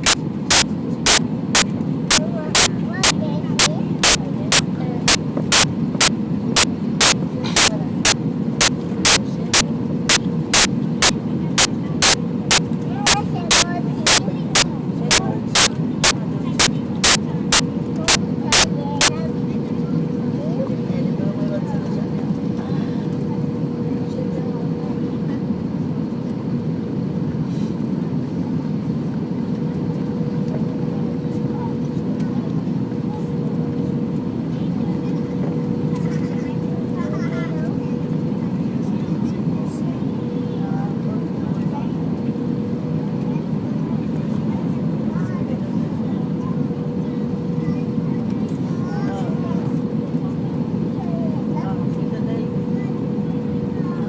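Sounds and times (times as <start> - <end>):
faint steady whine: 0.0 - 8.2, 10.1 - 11.2, 13.1 - 18.7
aircraft cabin engine rush: 0.0 - 12.5
loud sharp clicks: 4.0 - 4.6, 6.6 - 7.7, 10.6 - 11.2, 13.5 - 14.2.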